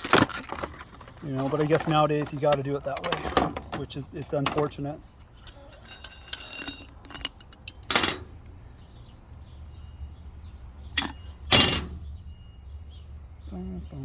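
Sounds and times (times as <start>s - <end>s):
packaging ripping and crinkling: 0.0s - 2.6s.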